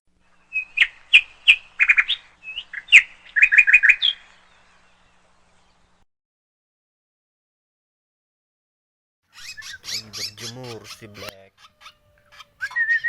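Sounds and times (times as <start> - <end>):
bird sharp chirps: 9.3 - 13.0.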